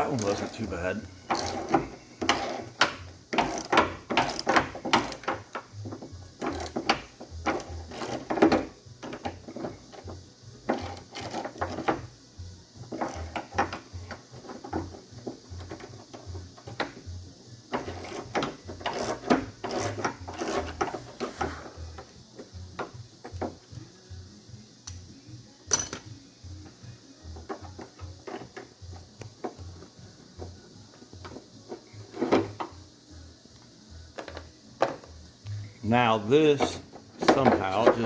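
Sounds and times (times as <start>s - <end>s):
hand tools clicking on metal: 0.1s - 5.6s, 17.7s - 21.4s.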